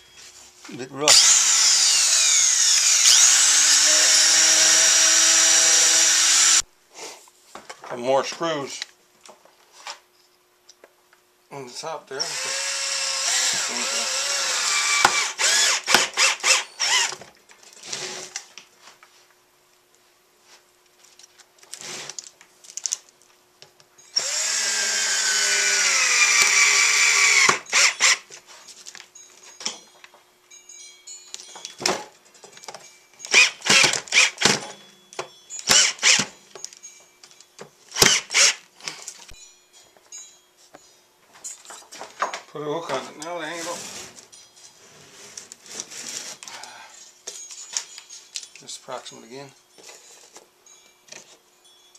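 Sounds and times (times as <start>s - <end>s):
power drill driving screws: 1.1s - 6.6s, 12.2s - 17.2s, 24.2s - 28.3s, 33.3s - 34.7s, 35.6s - 36.3s, 37.9s - 38.6s.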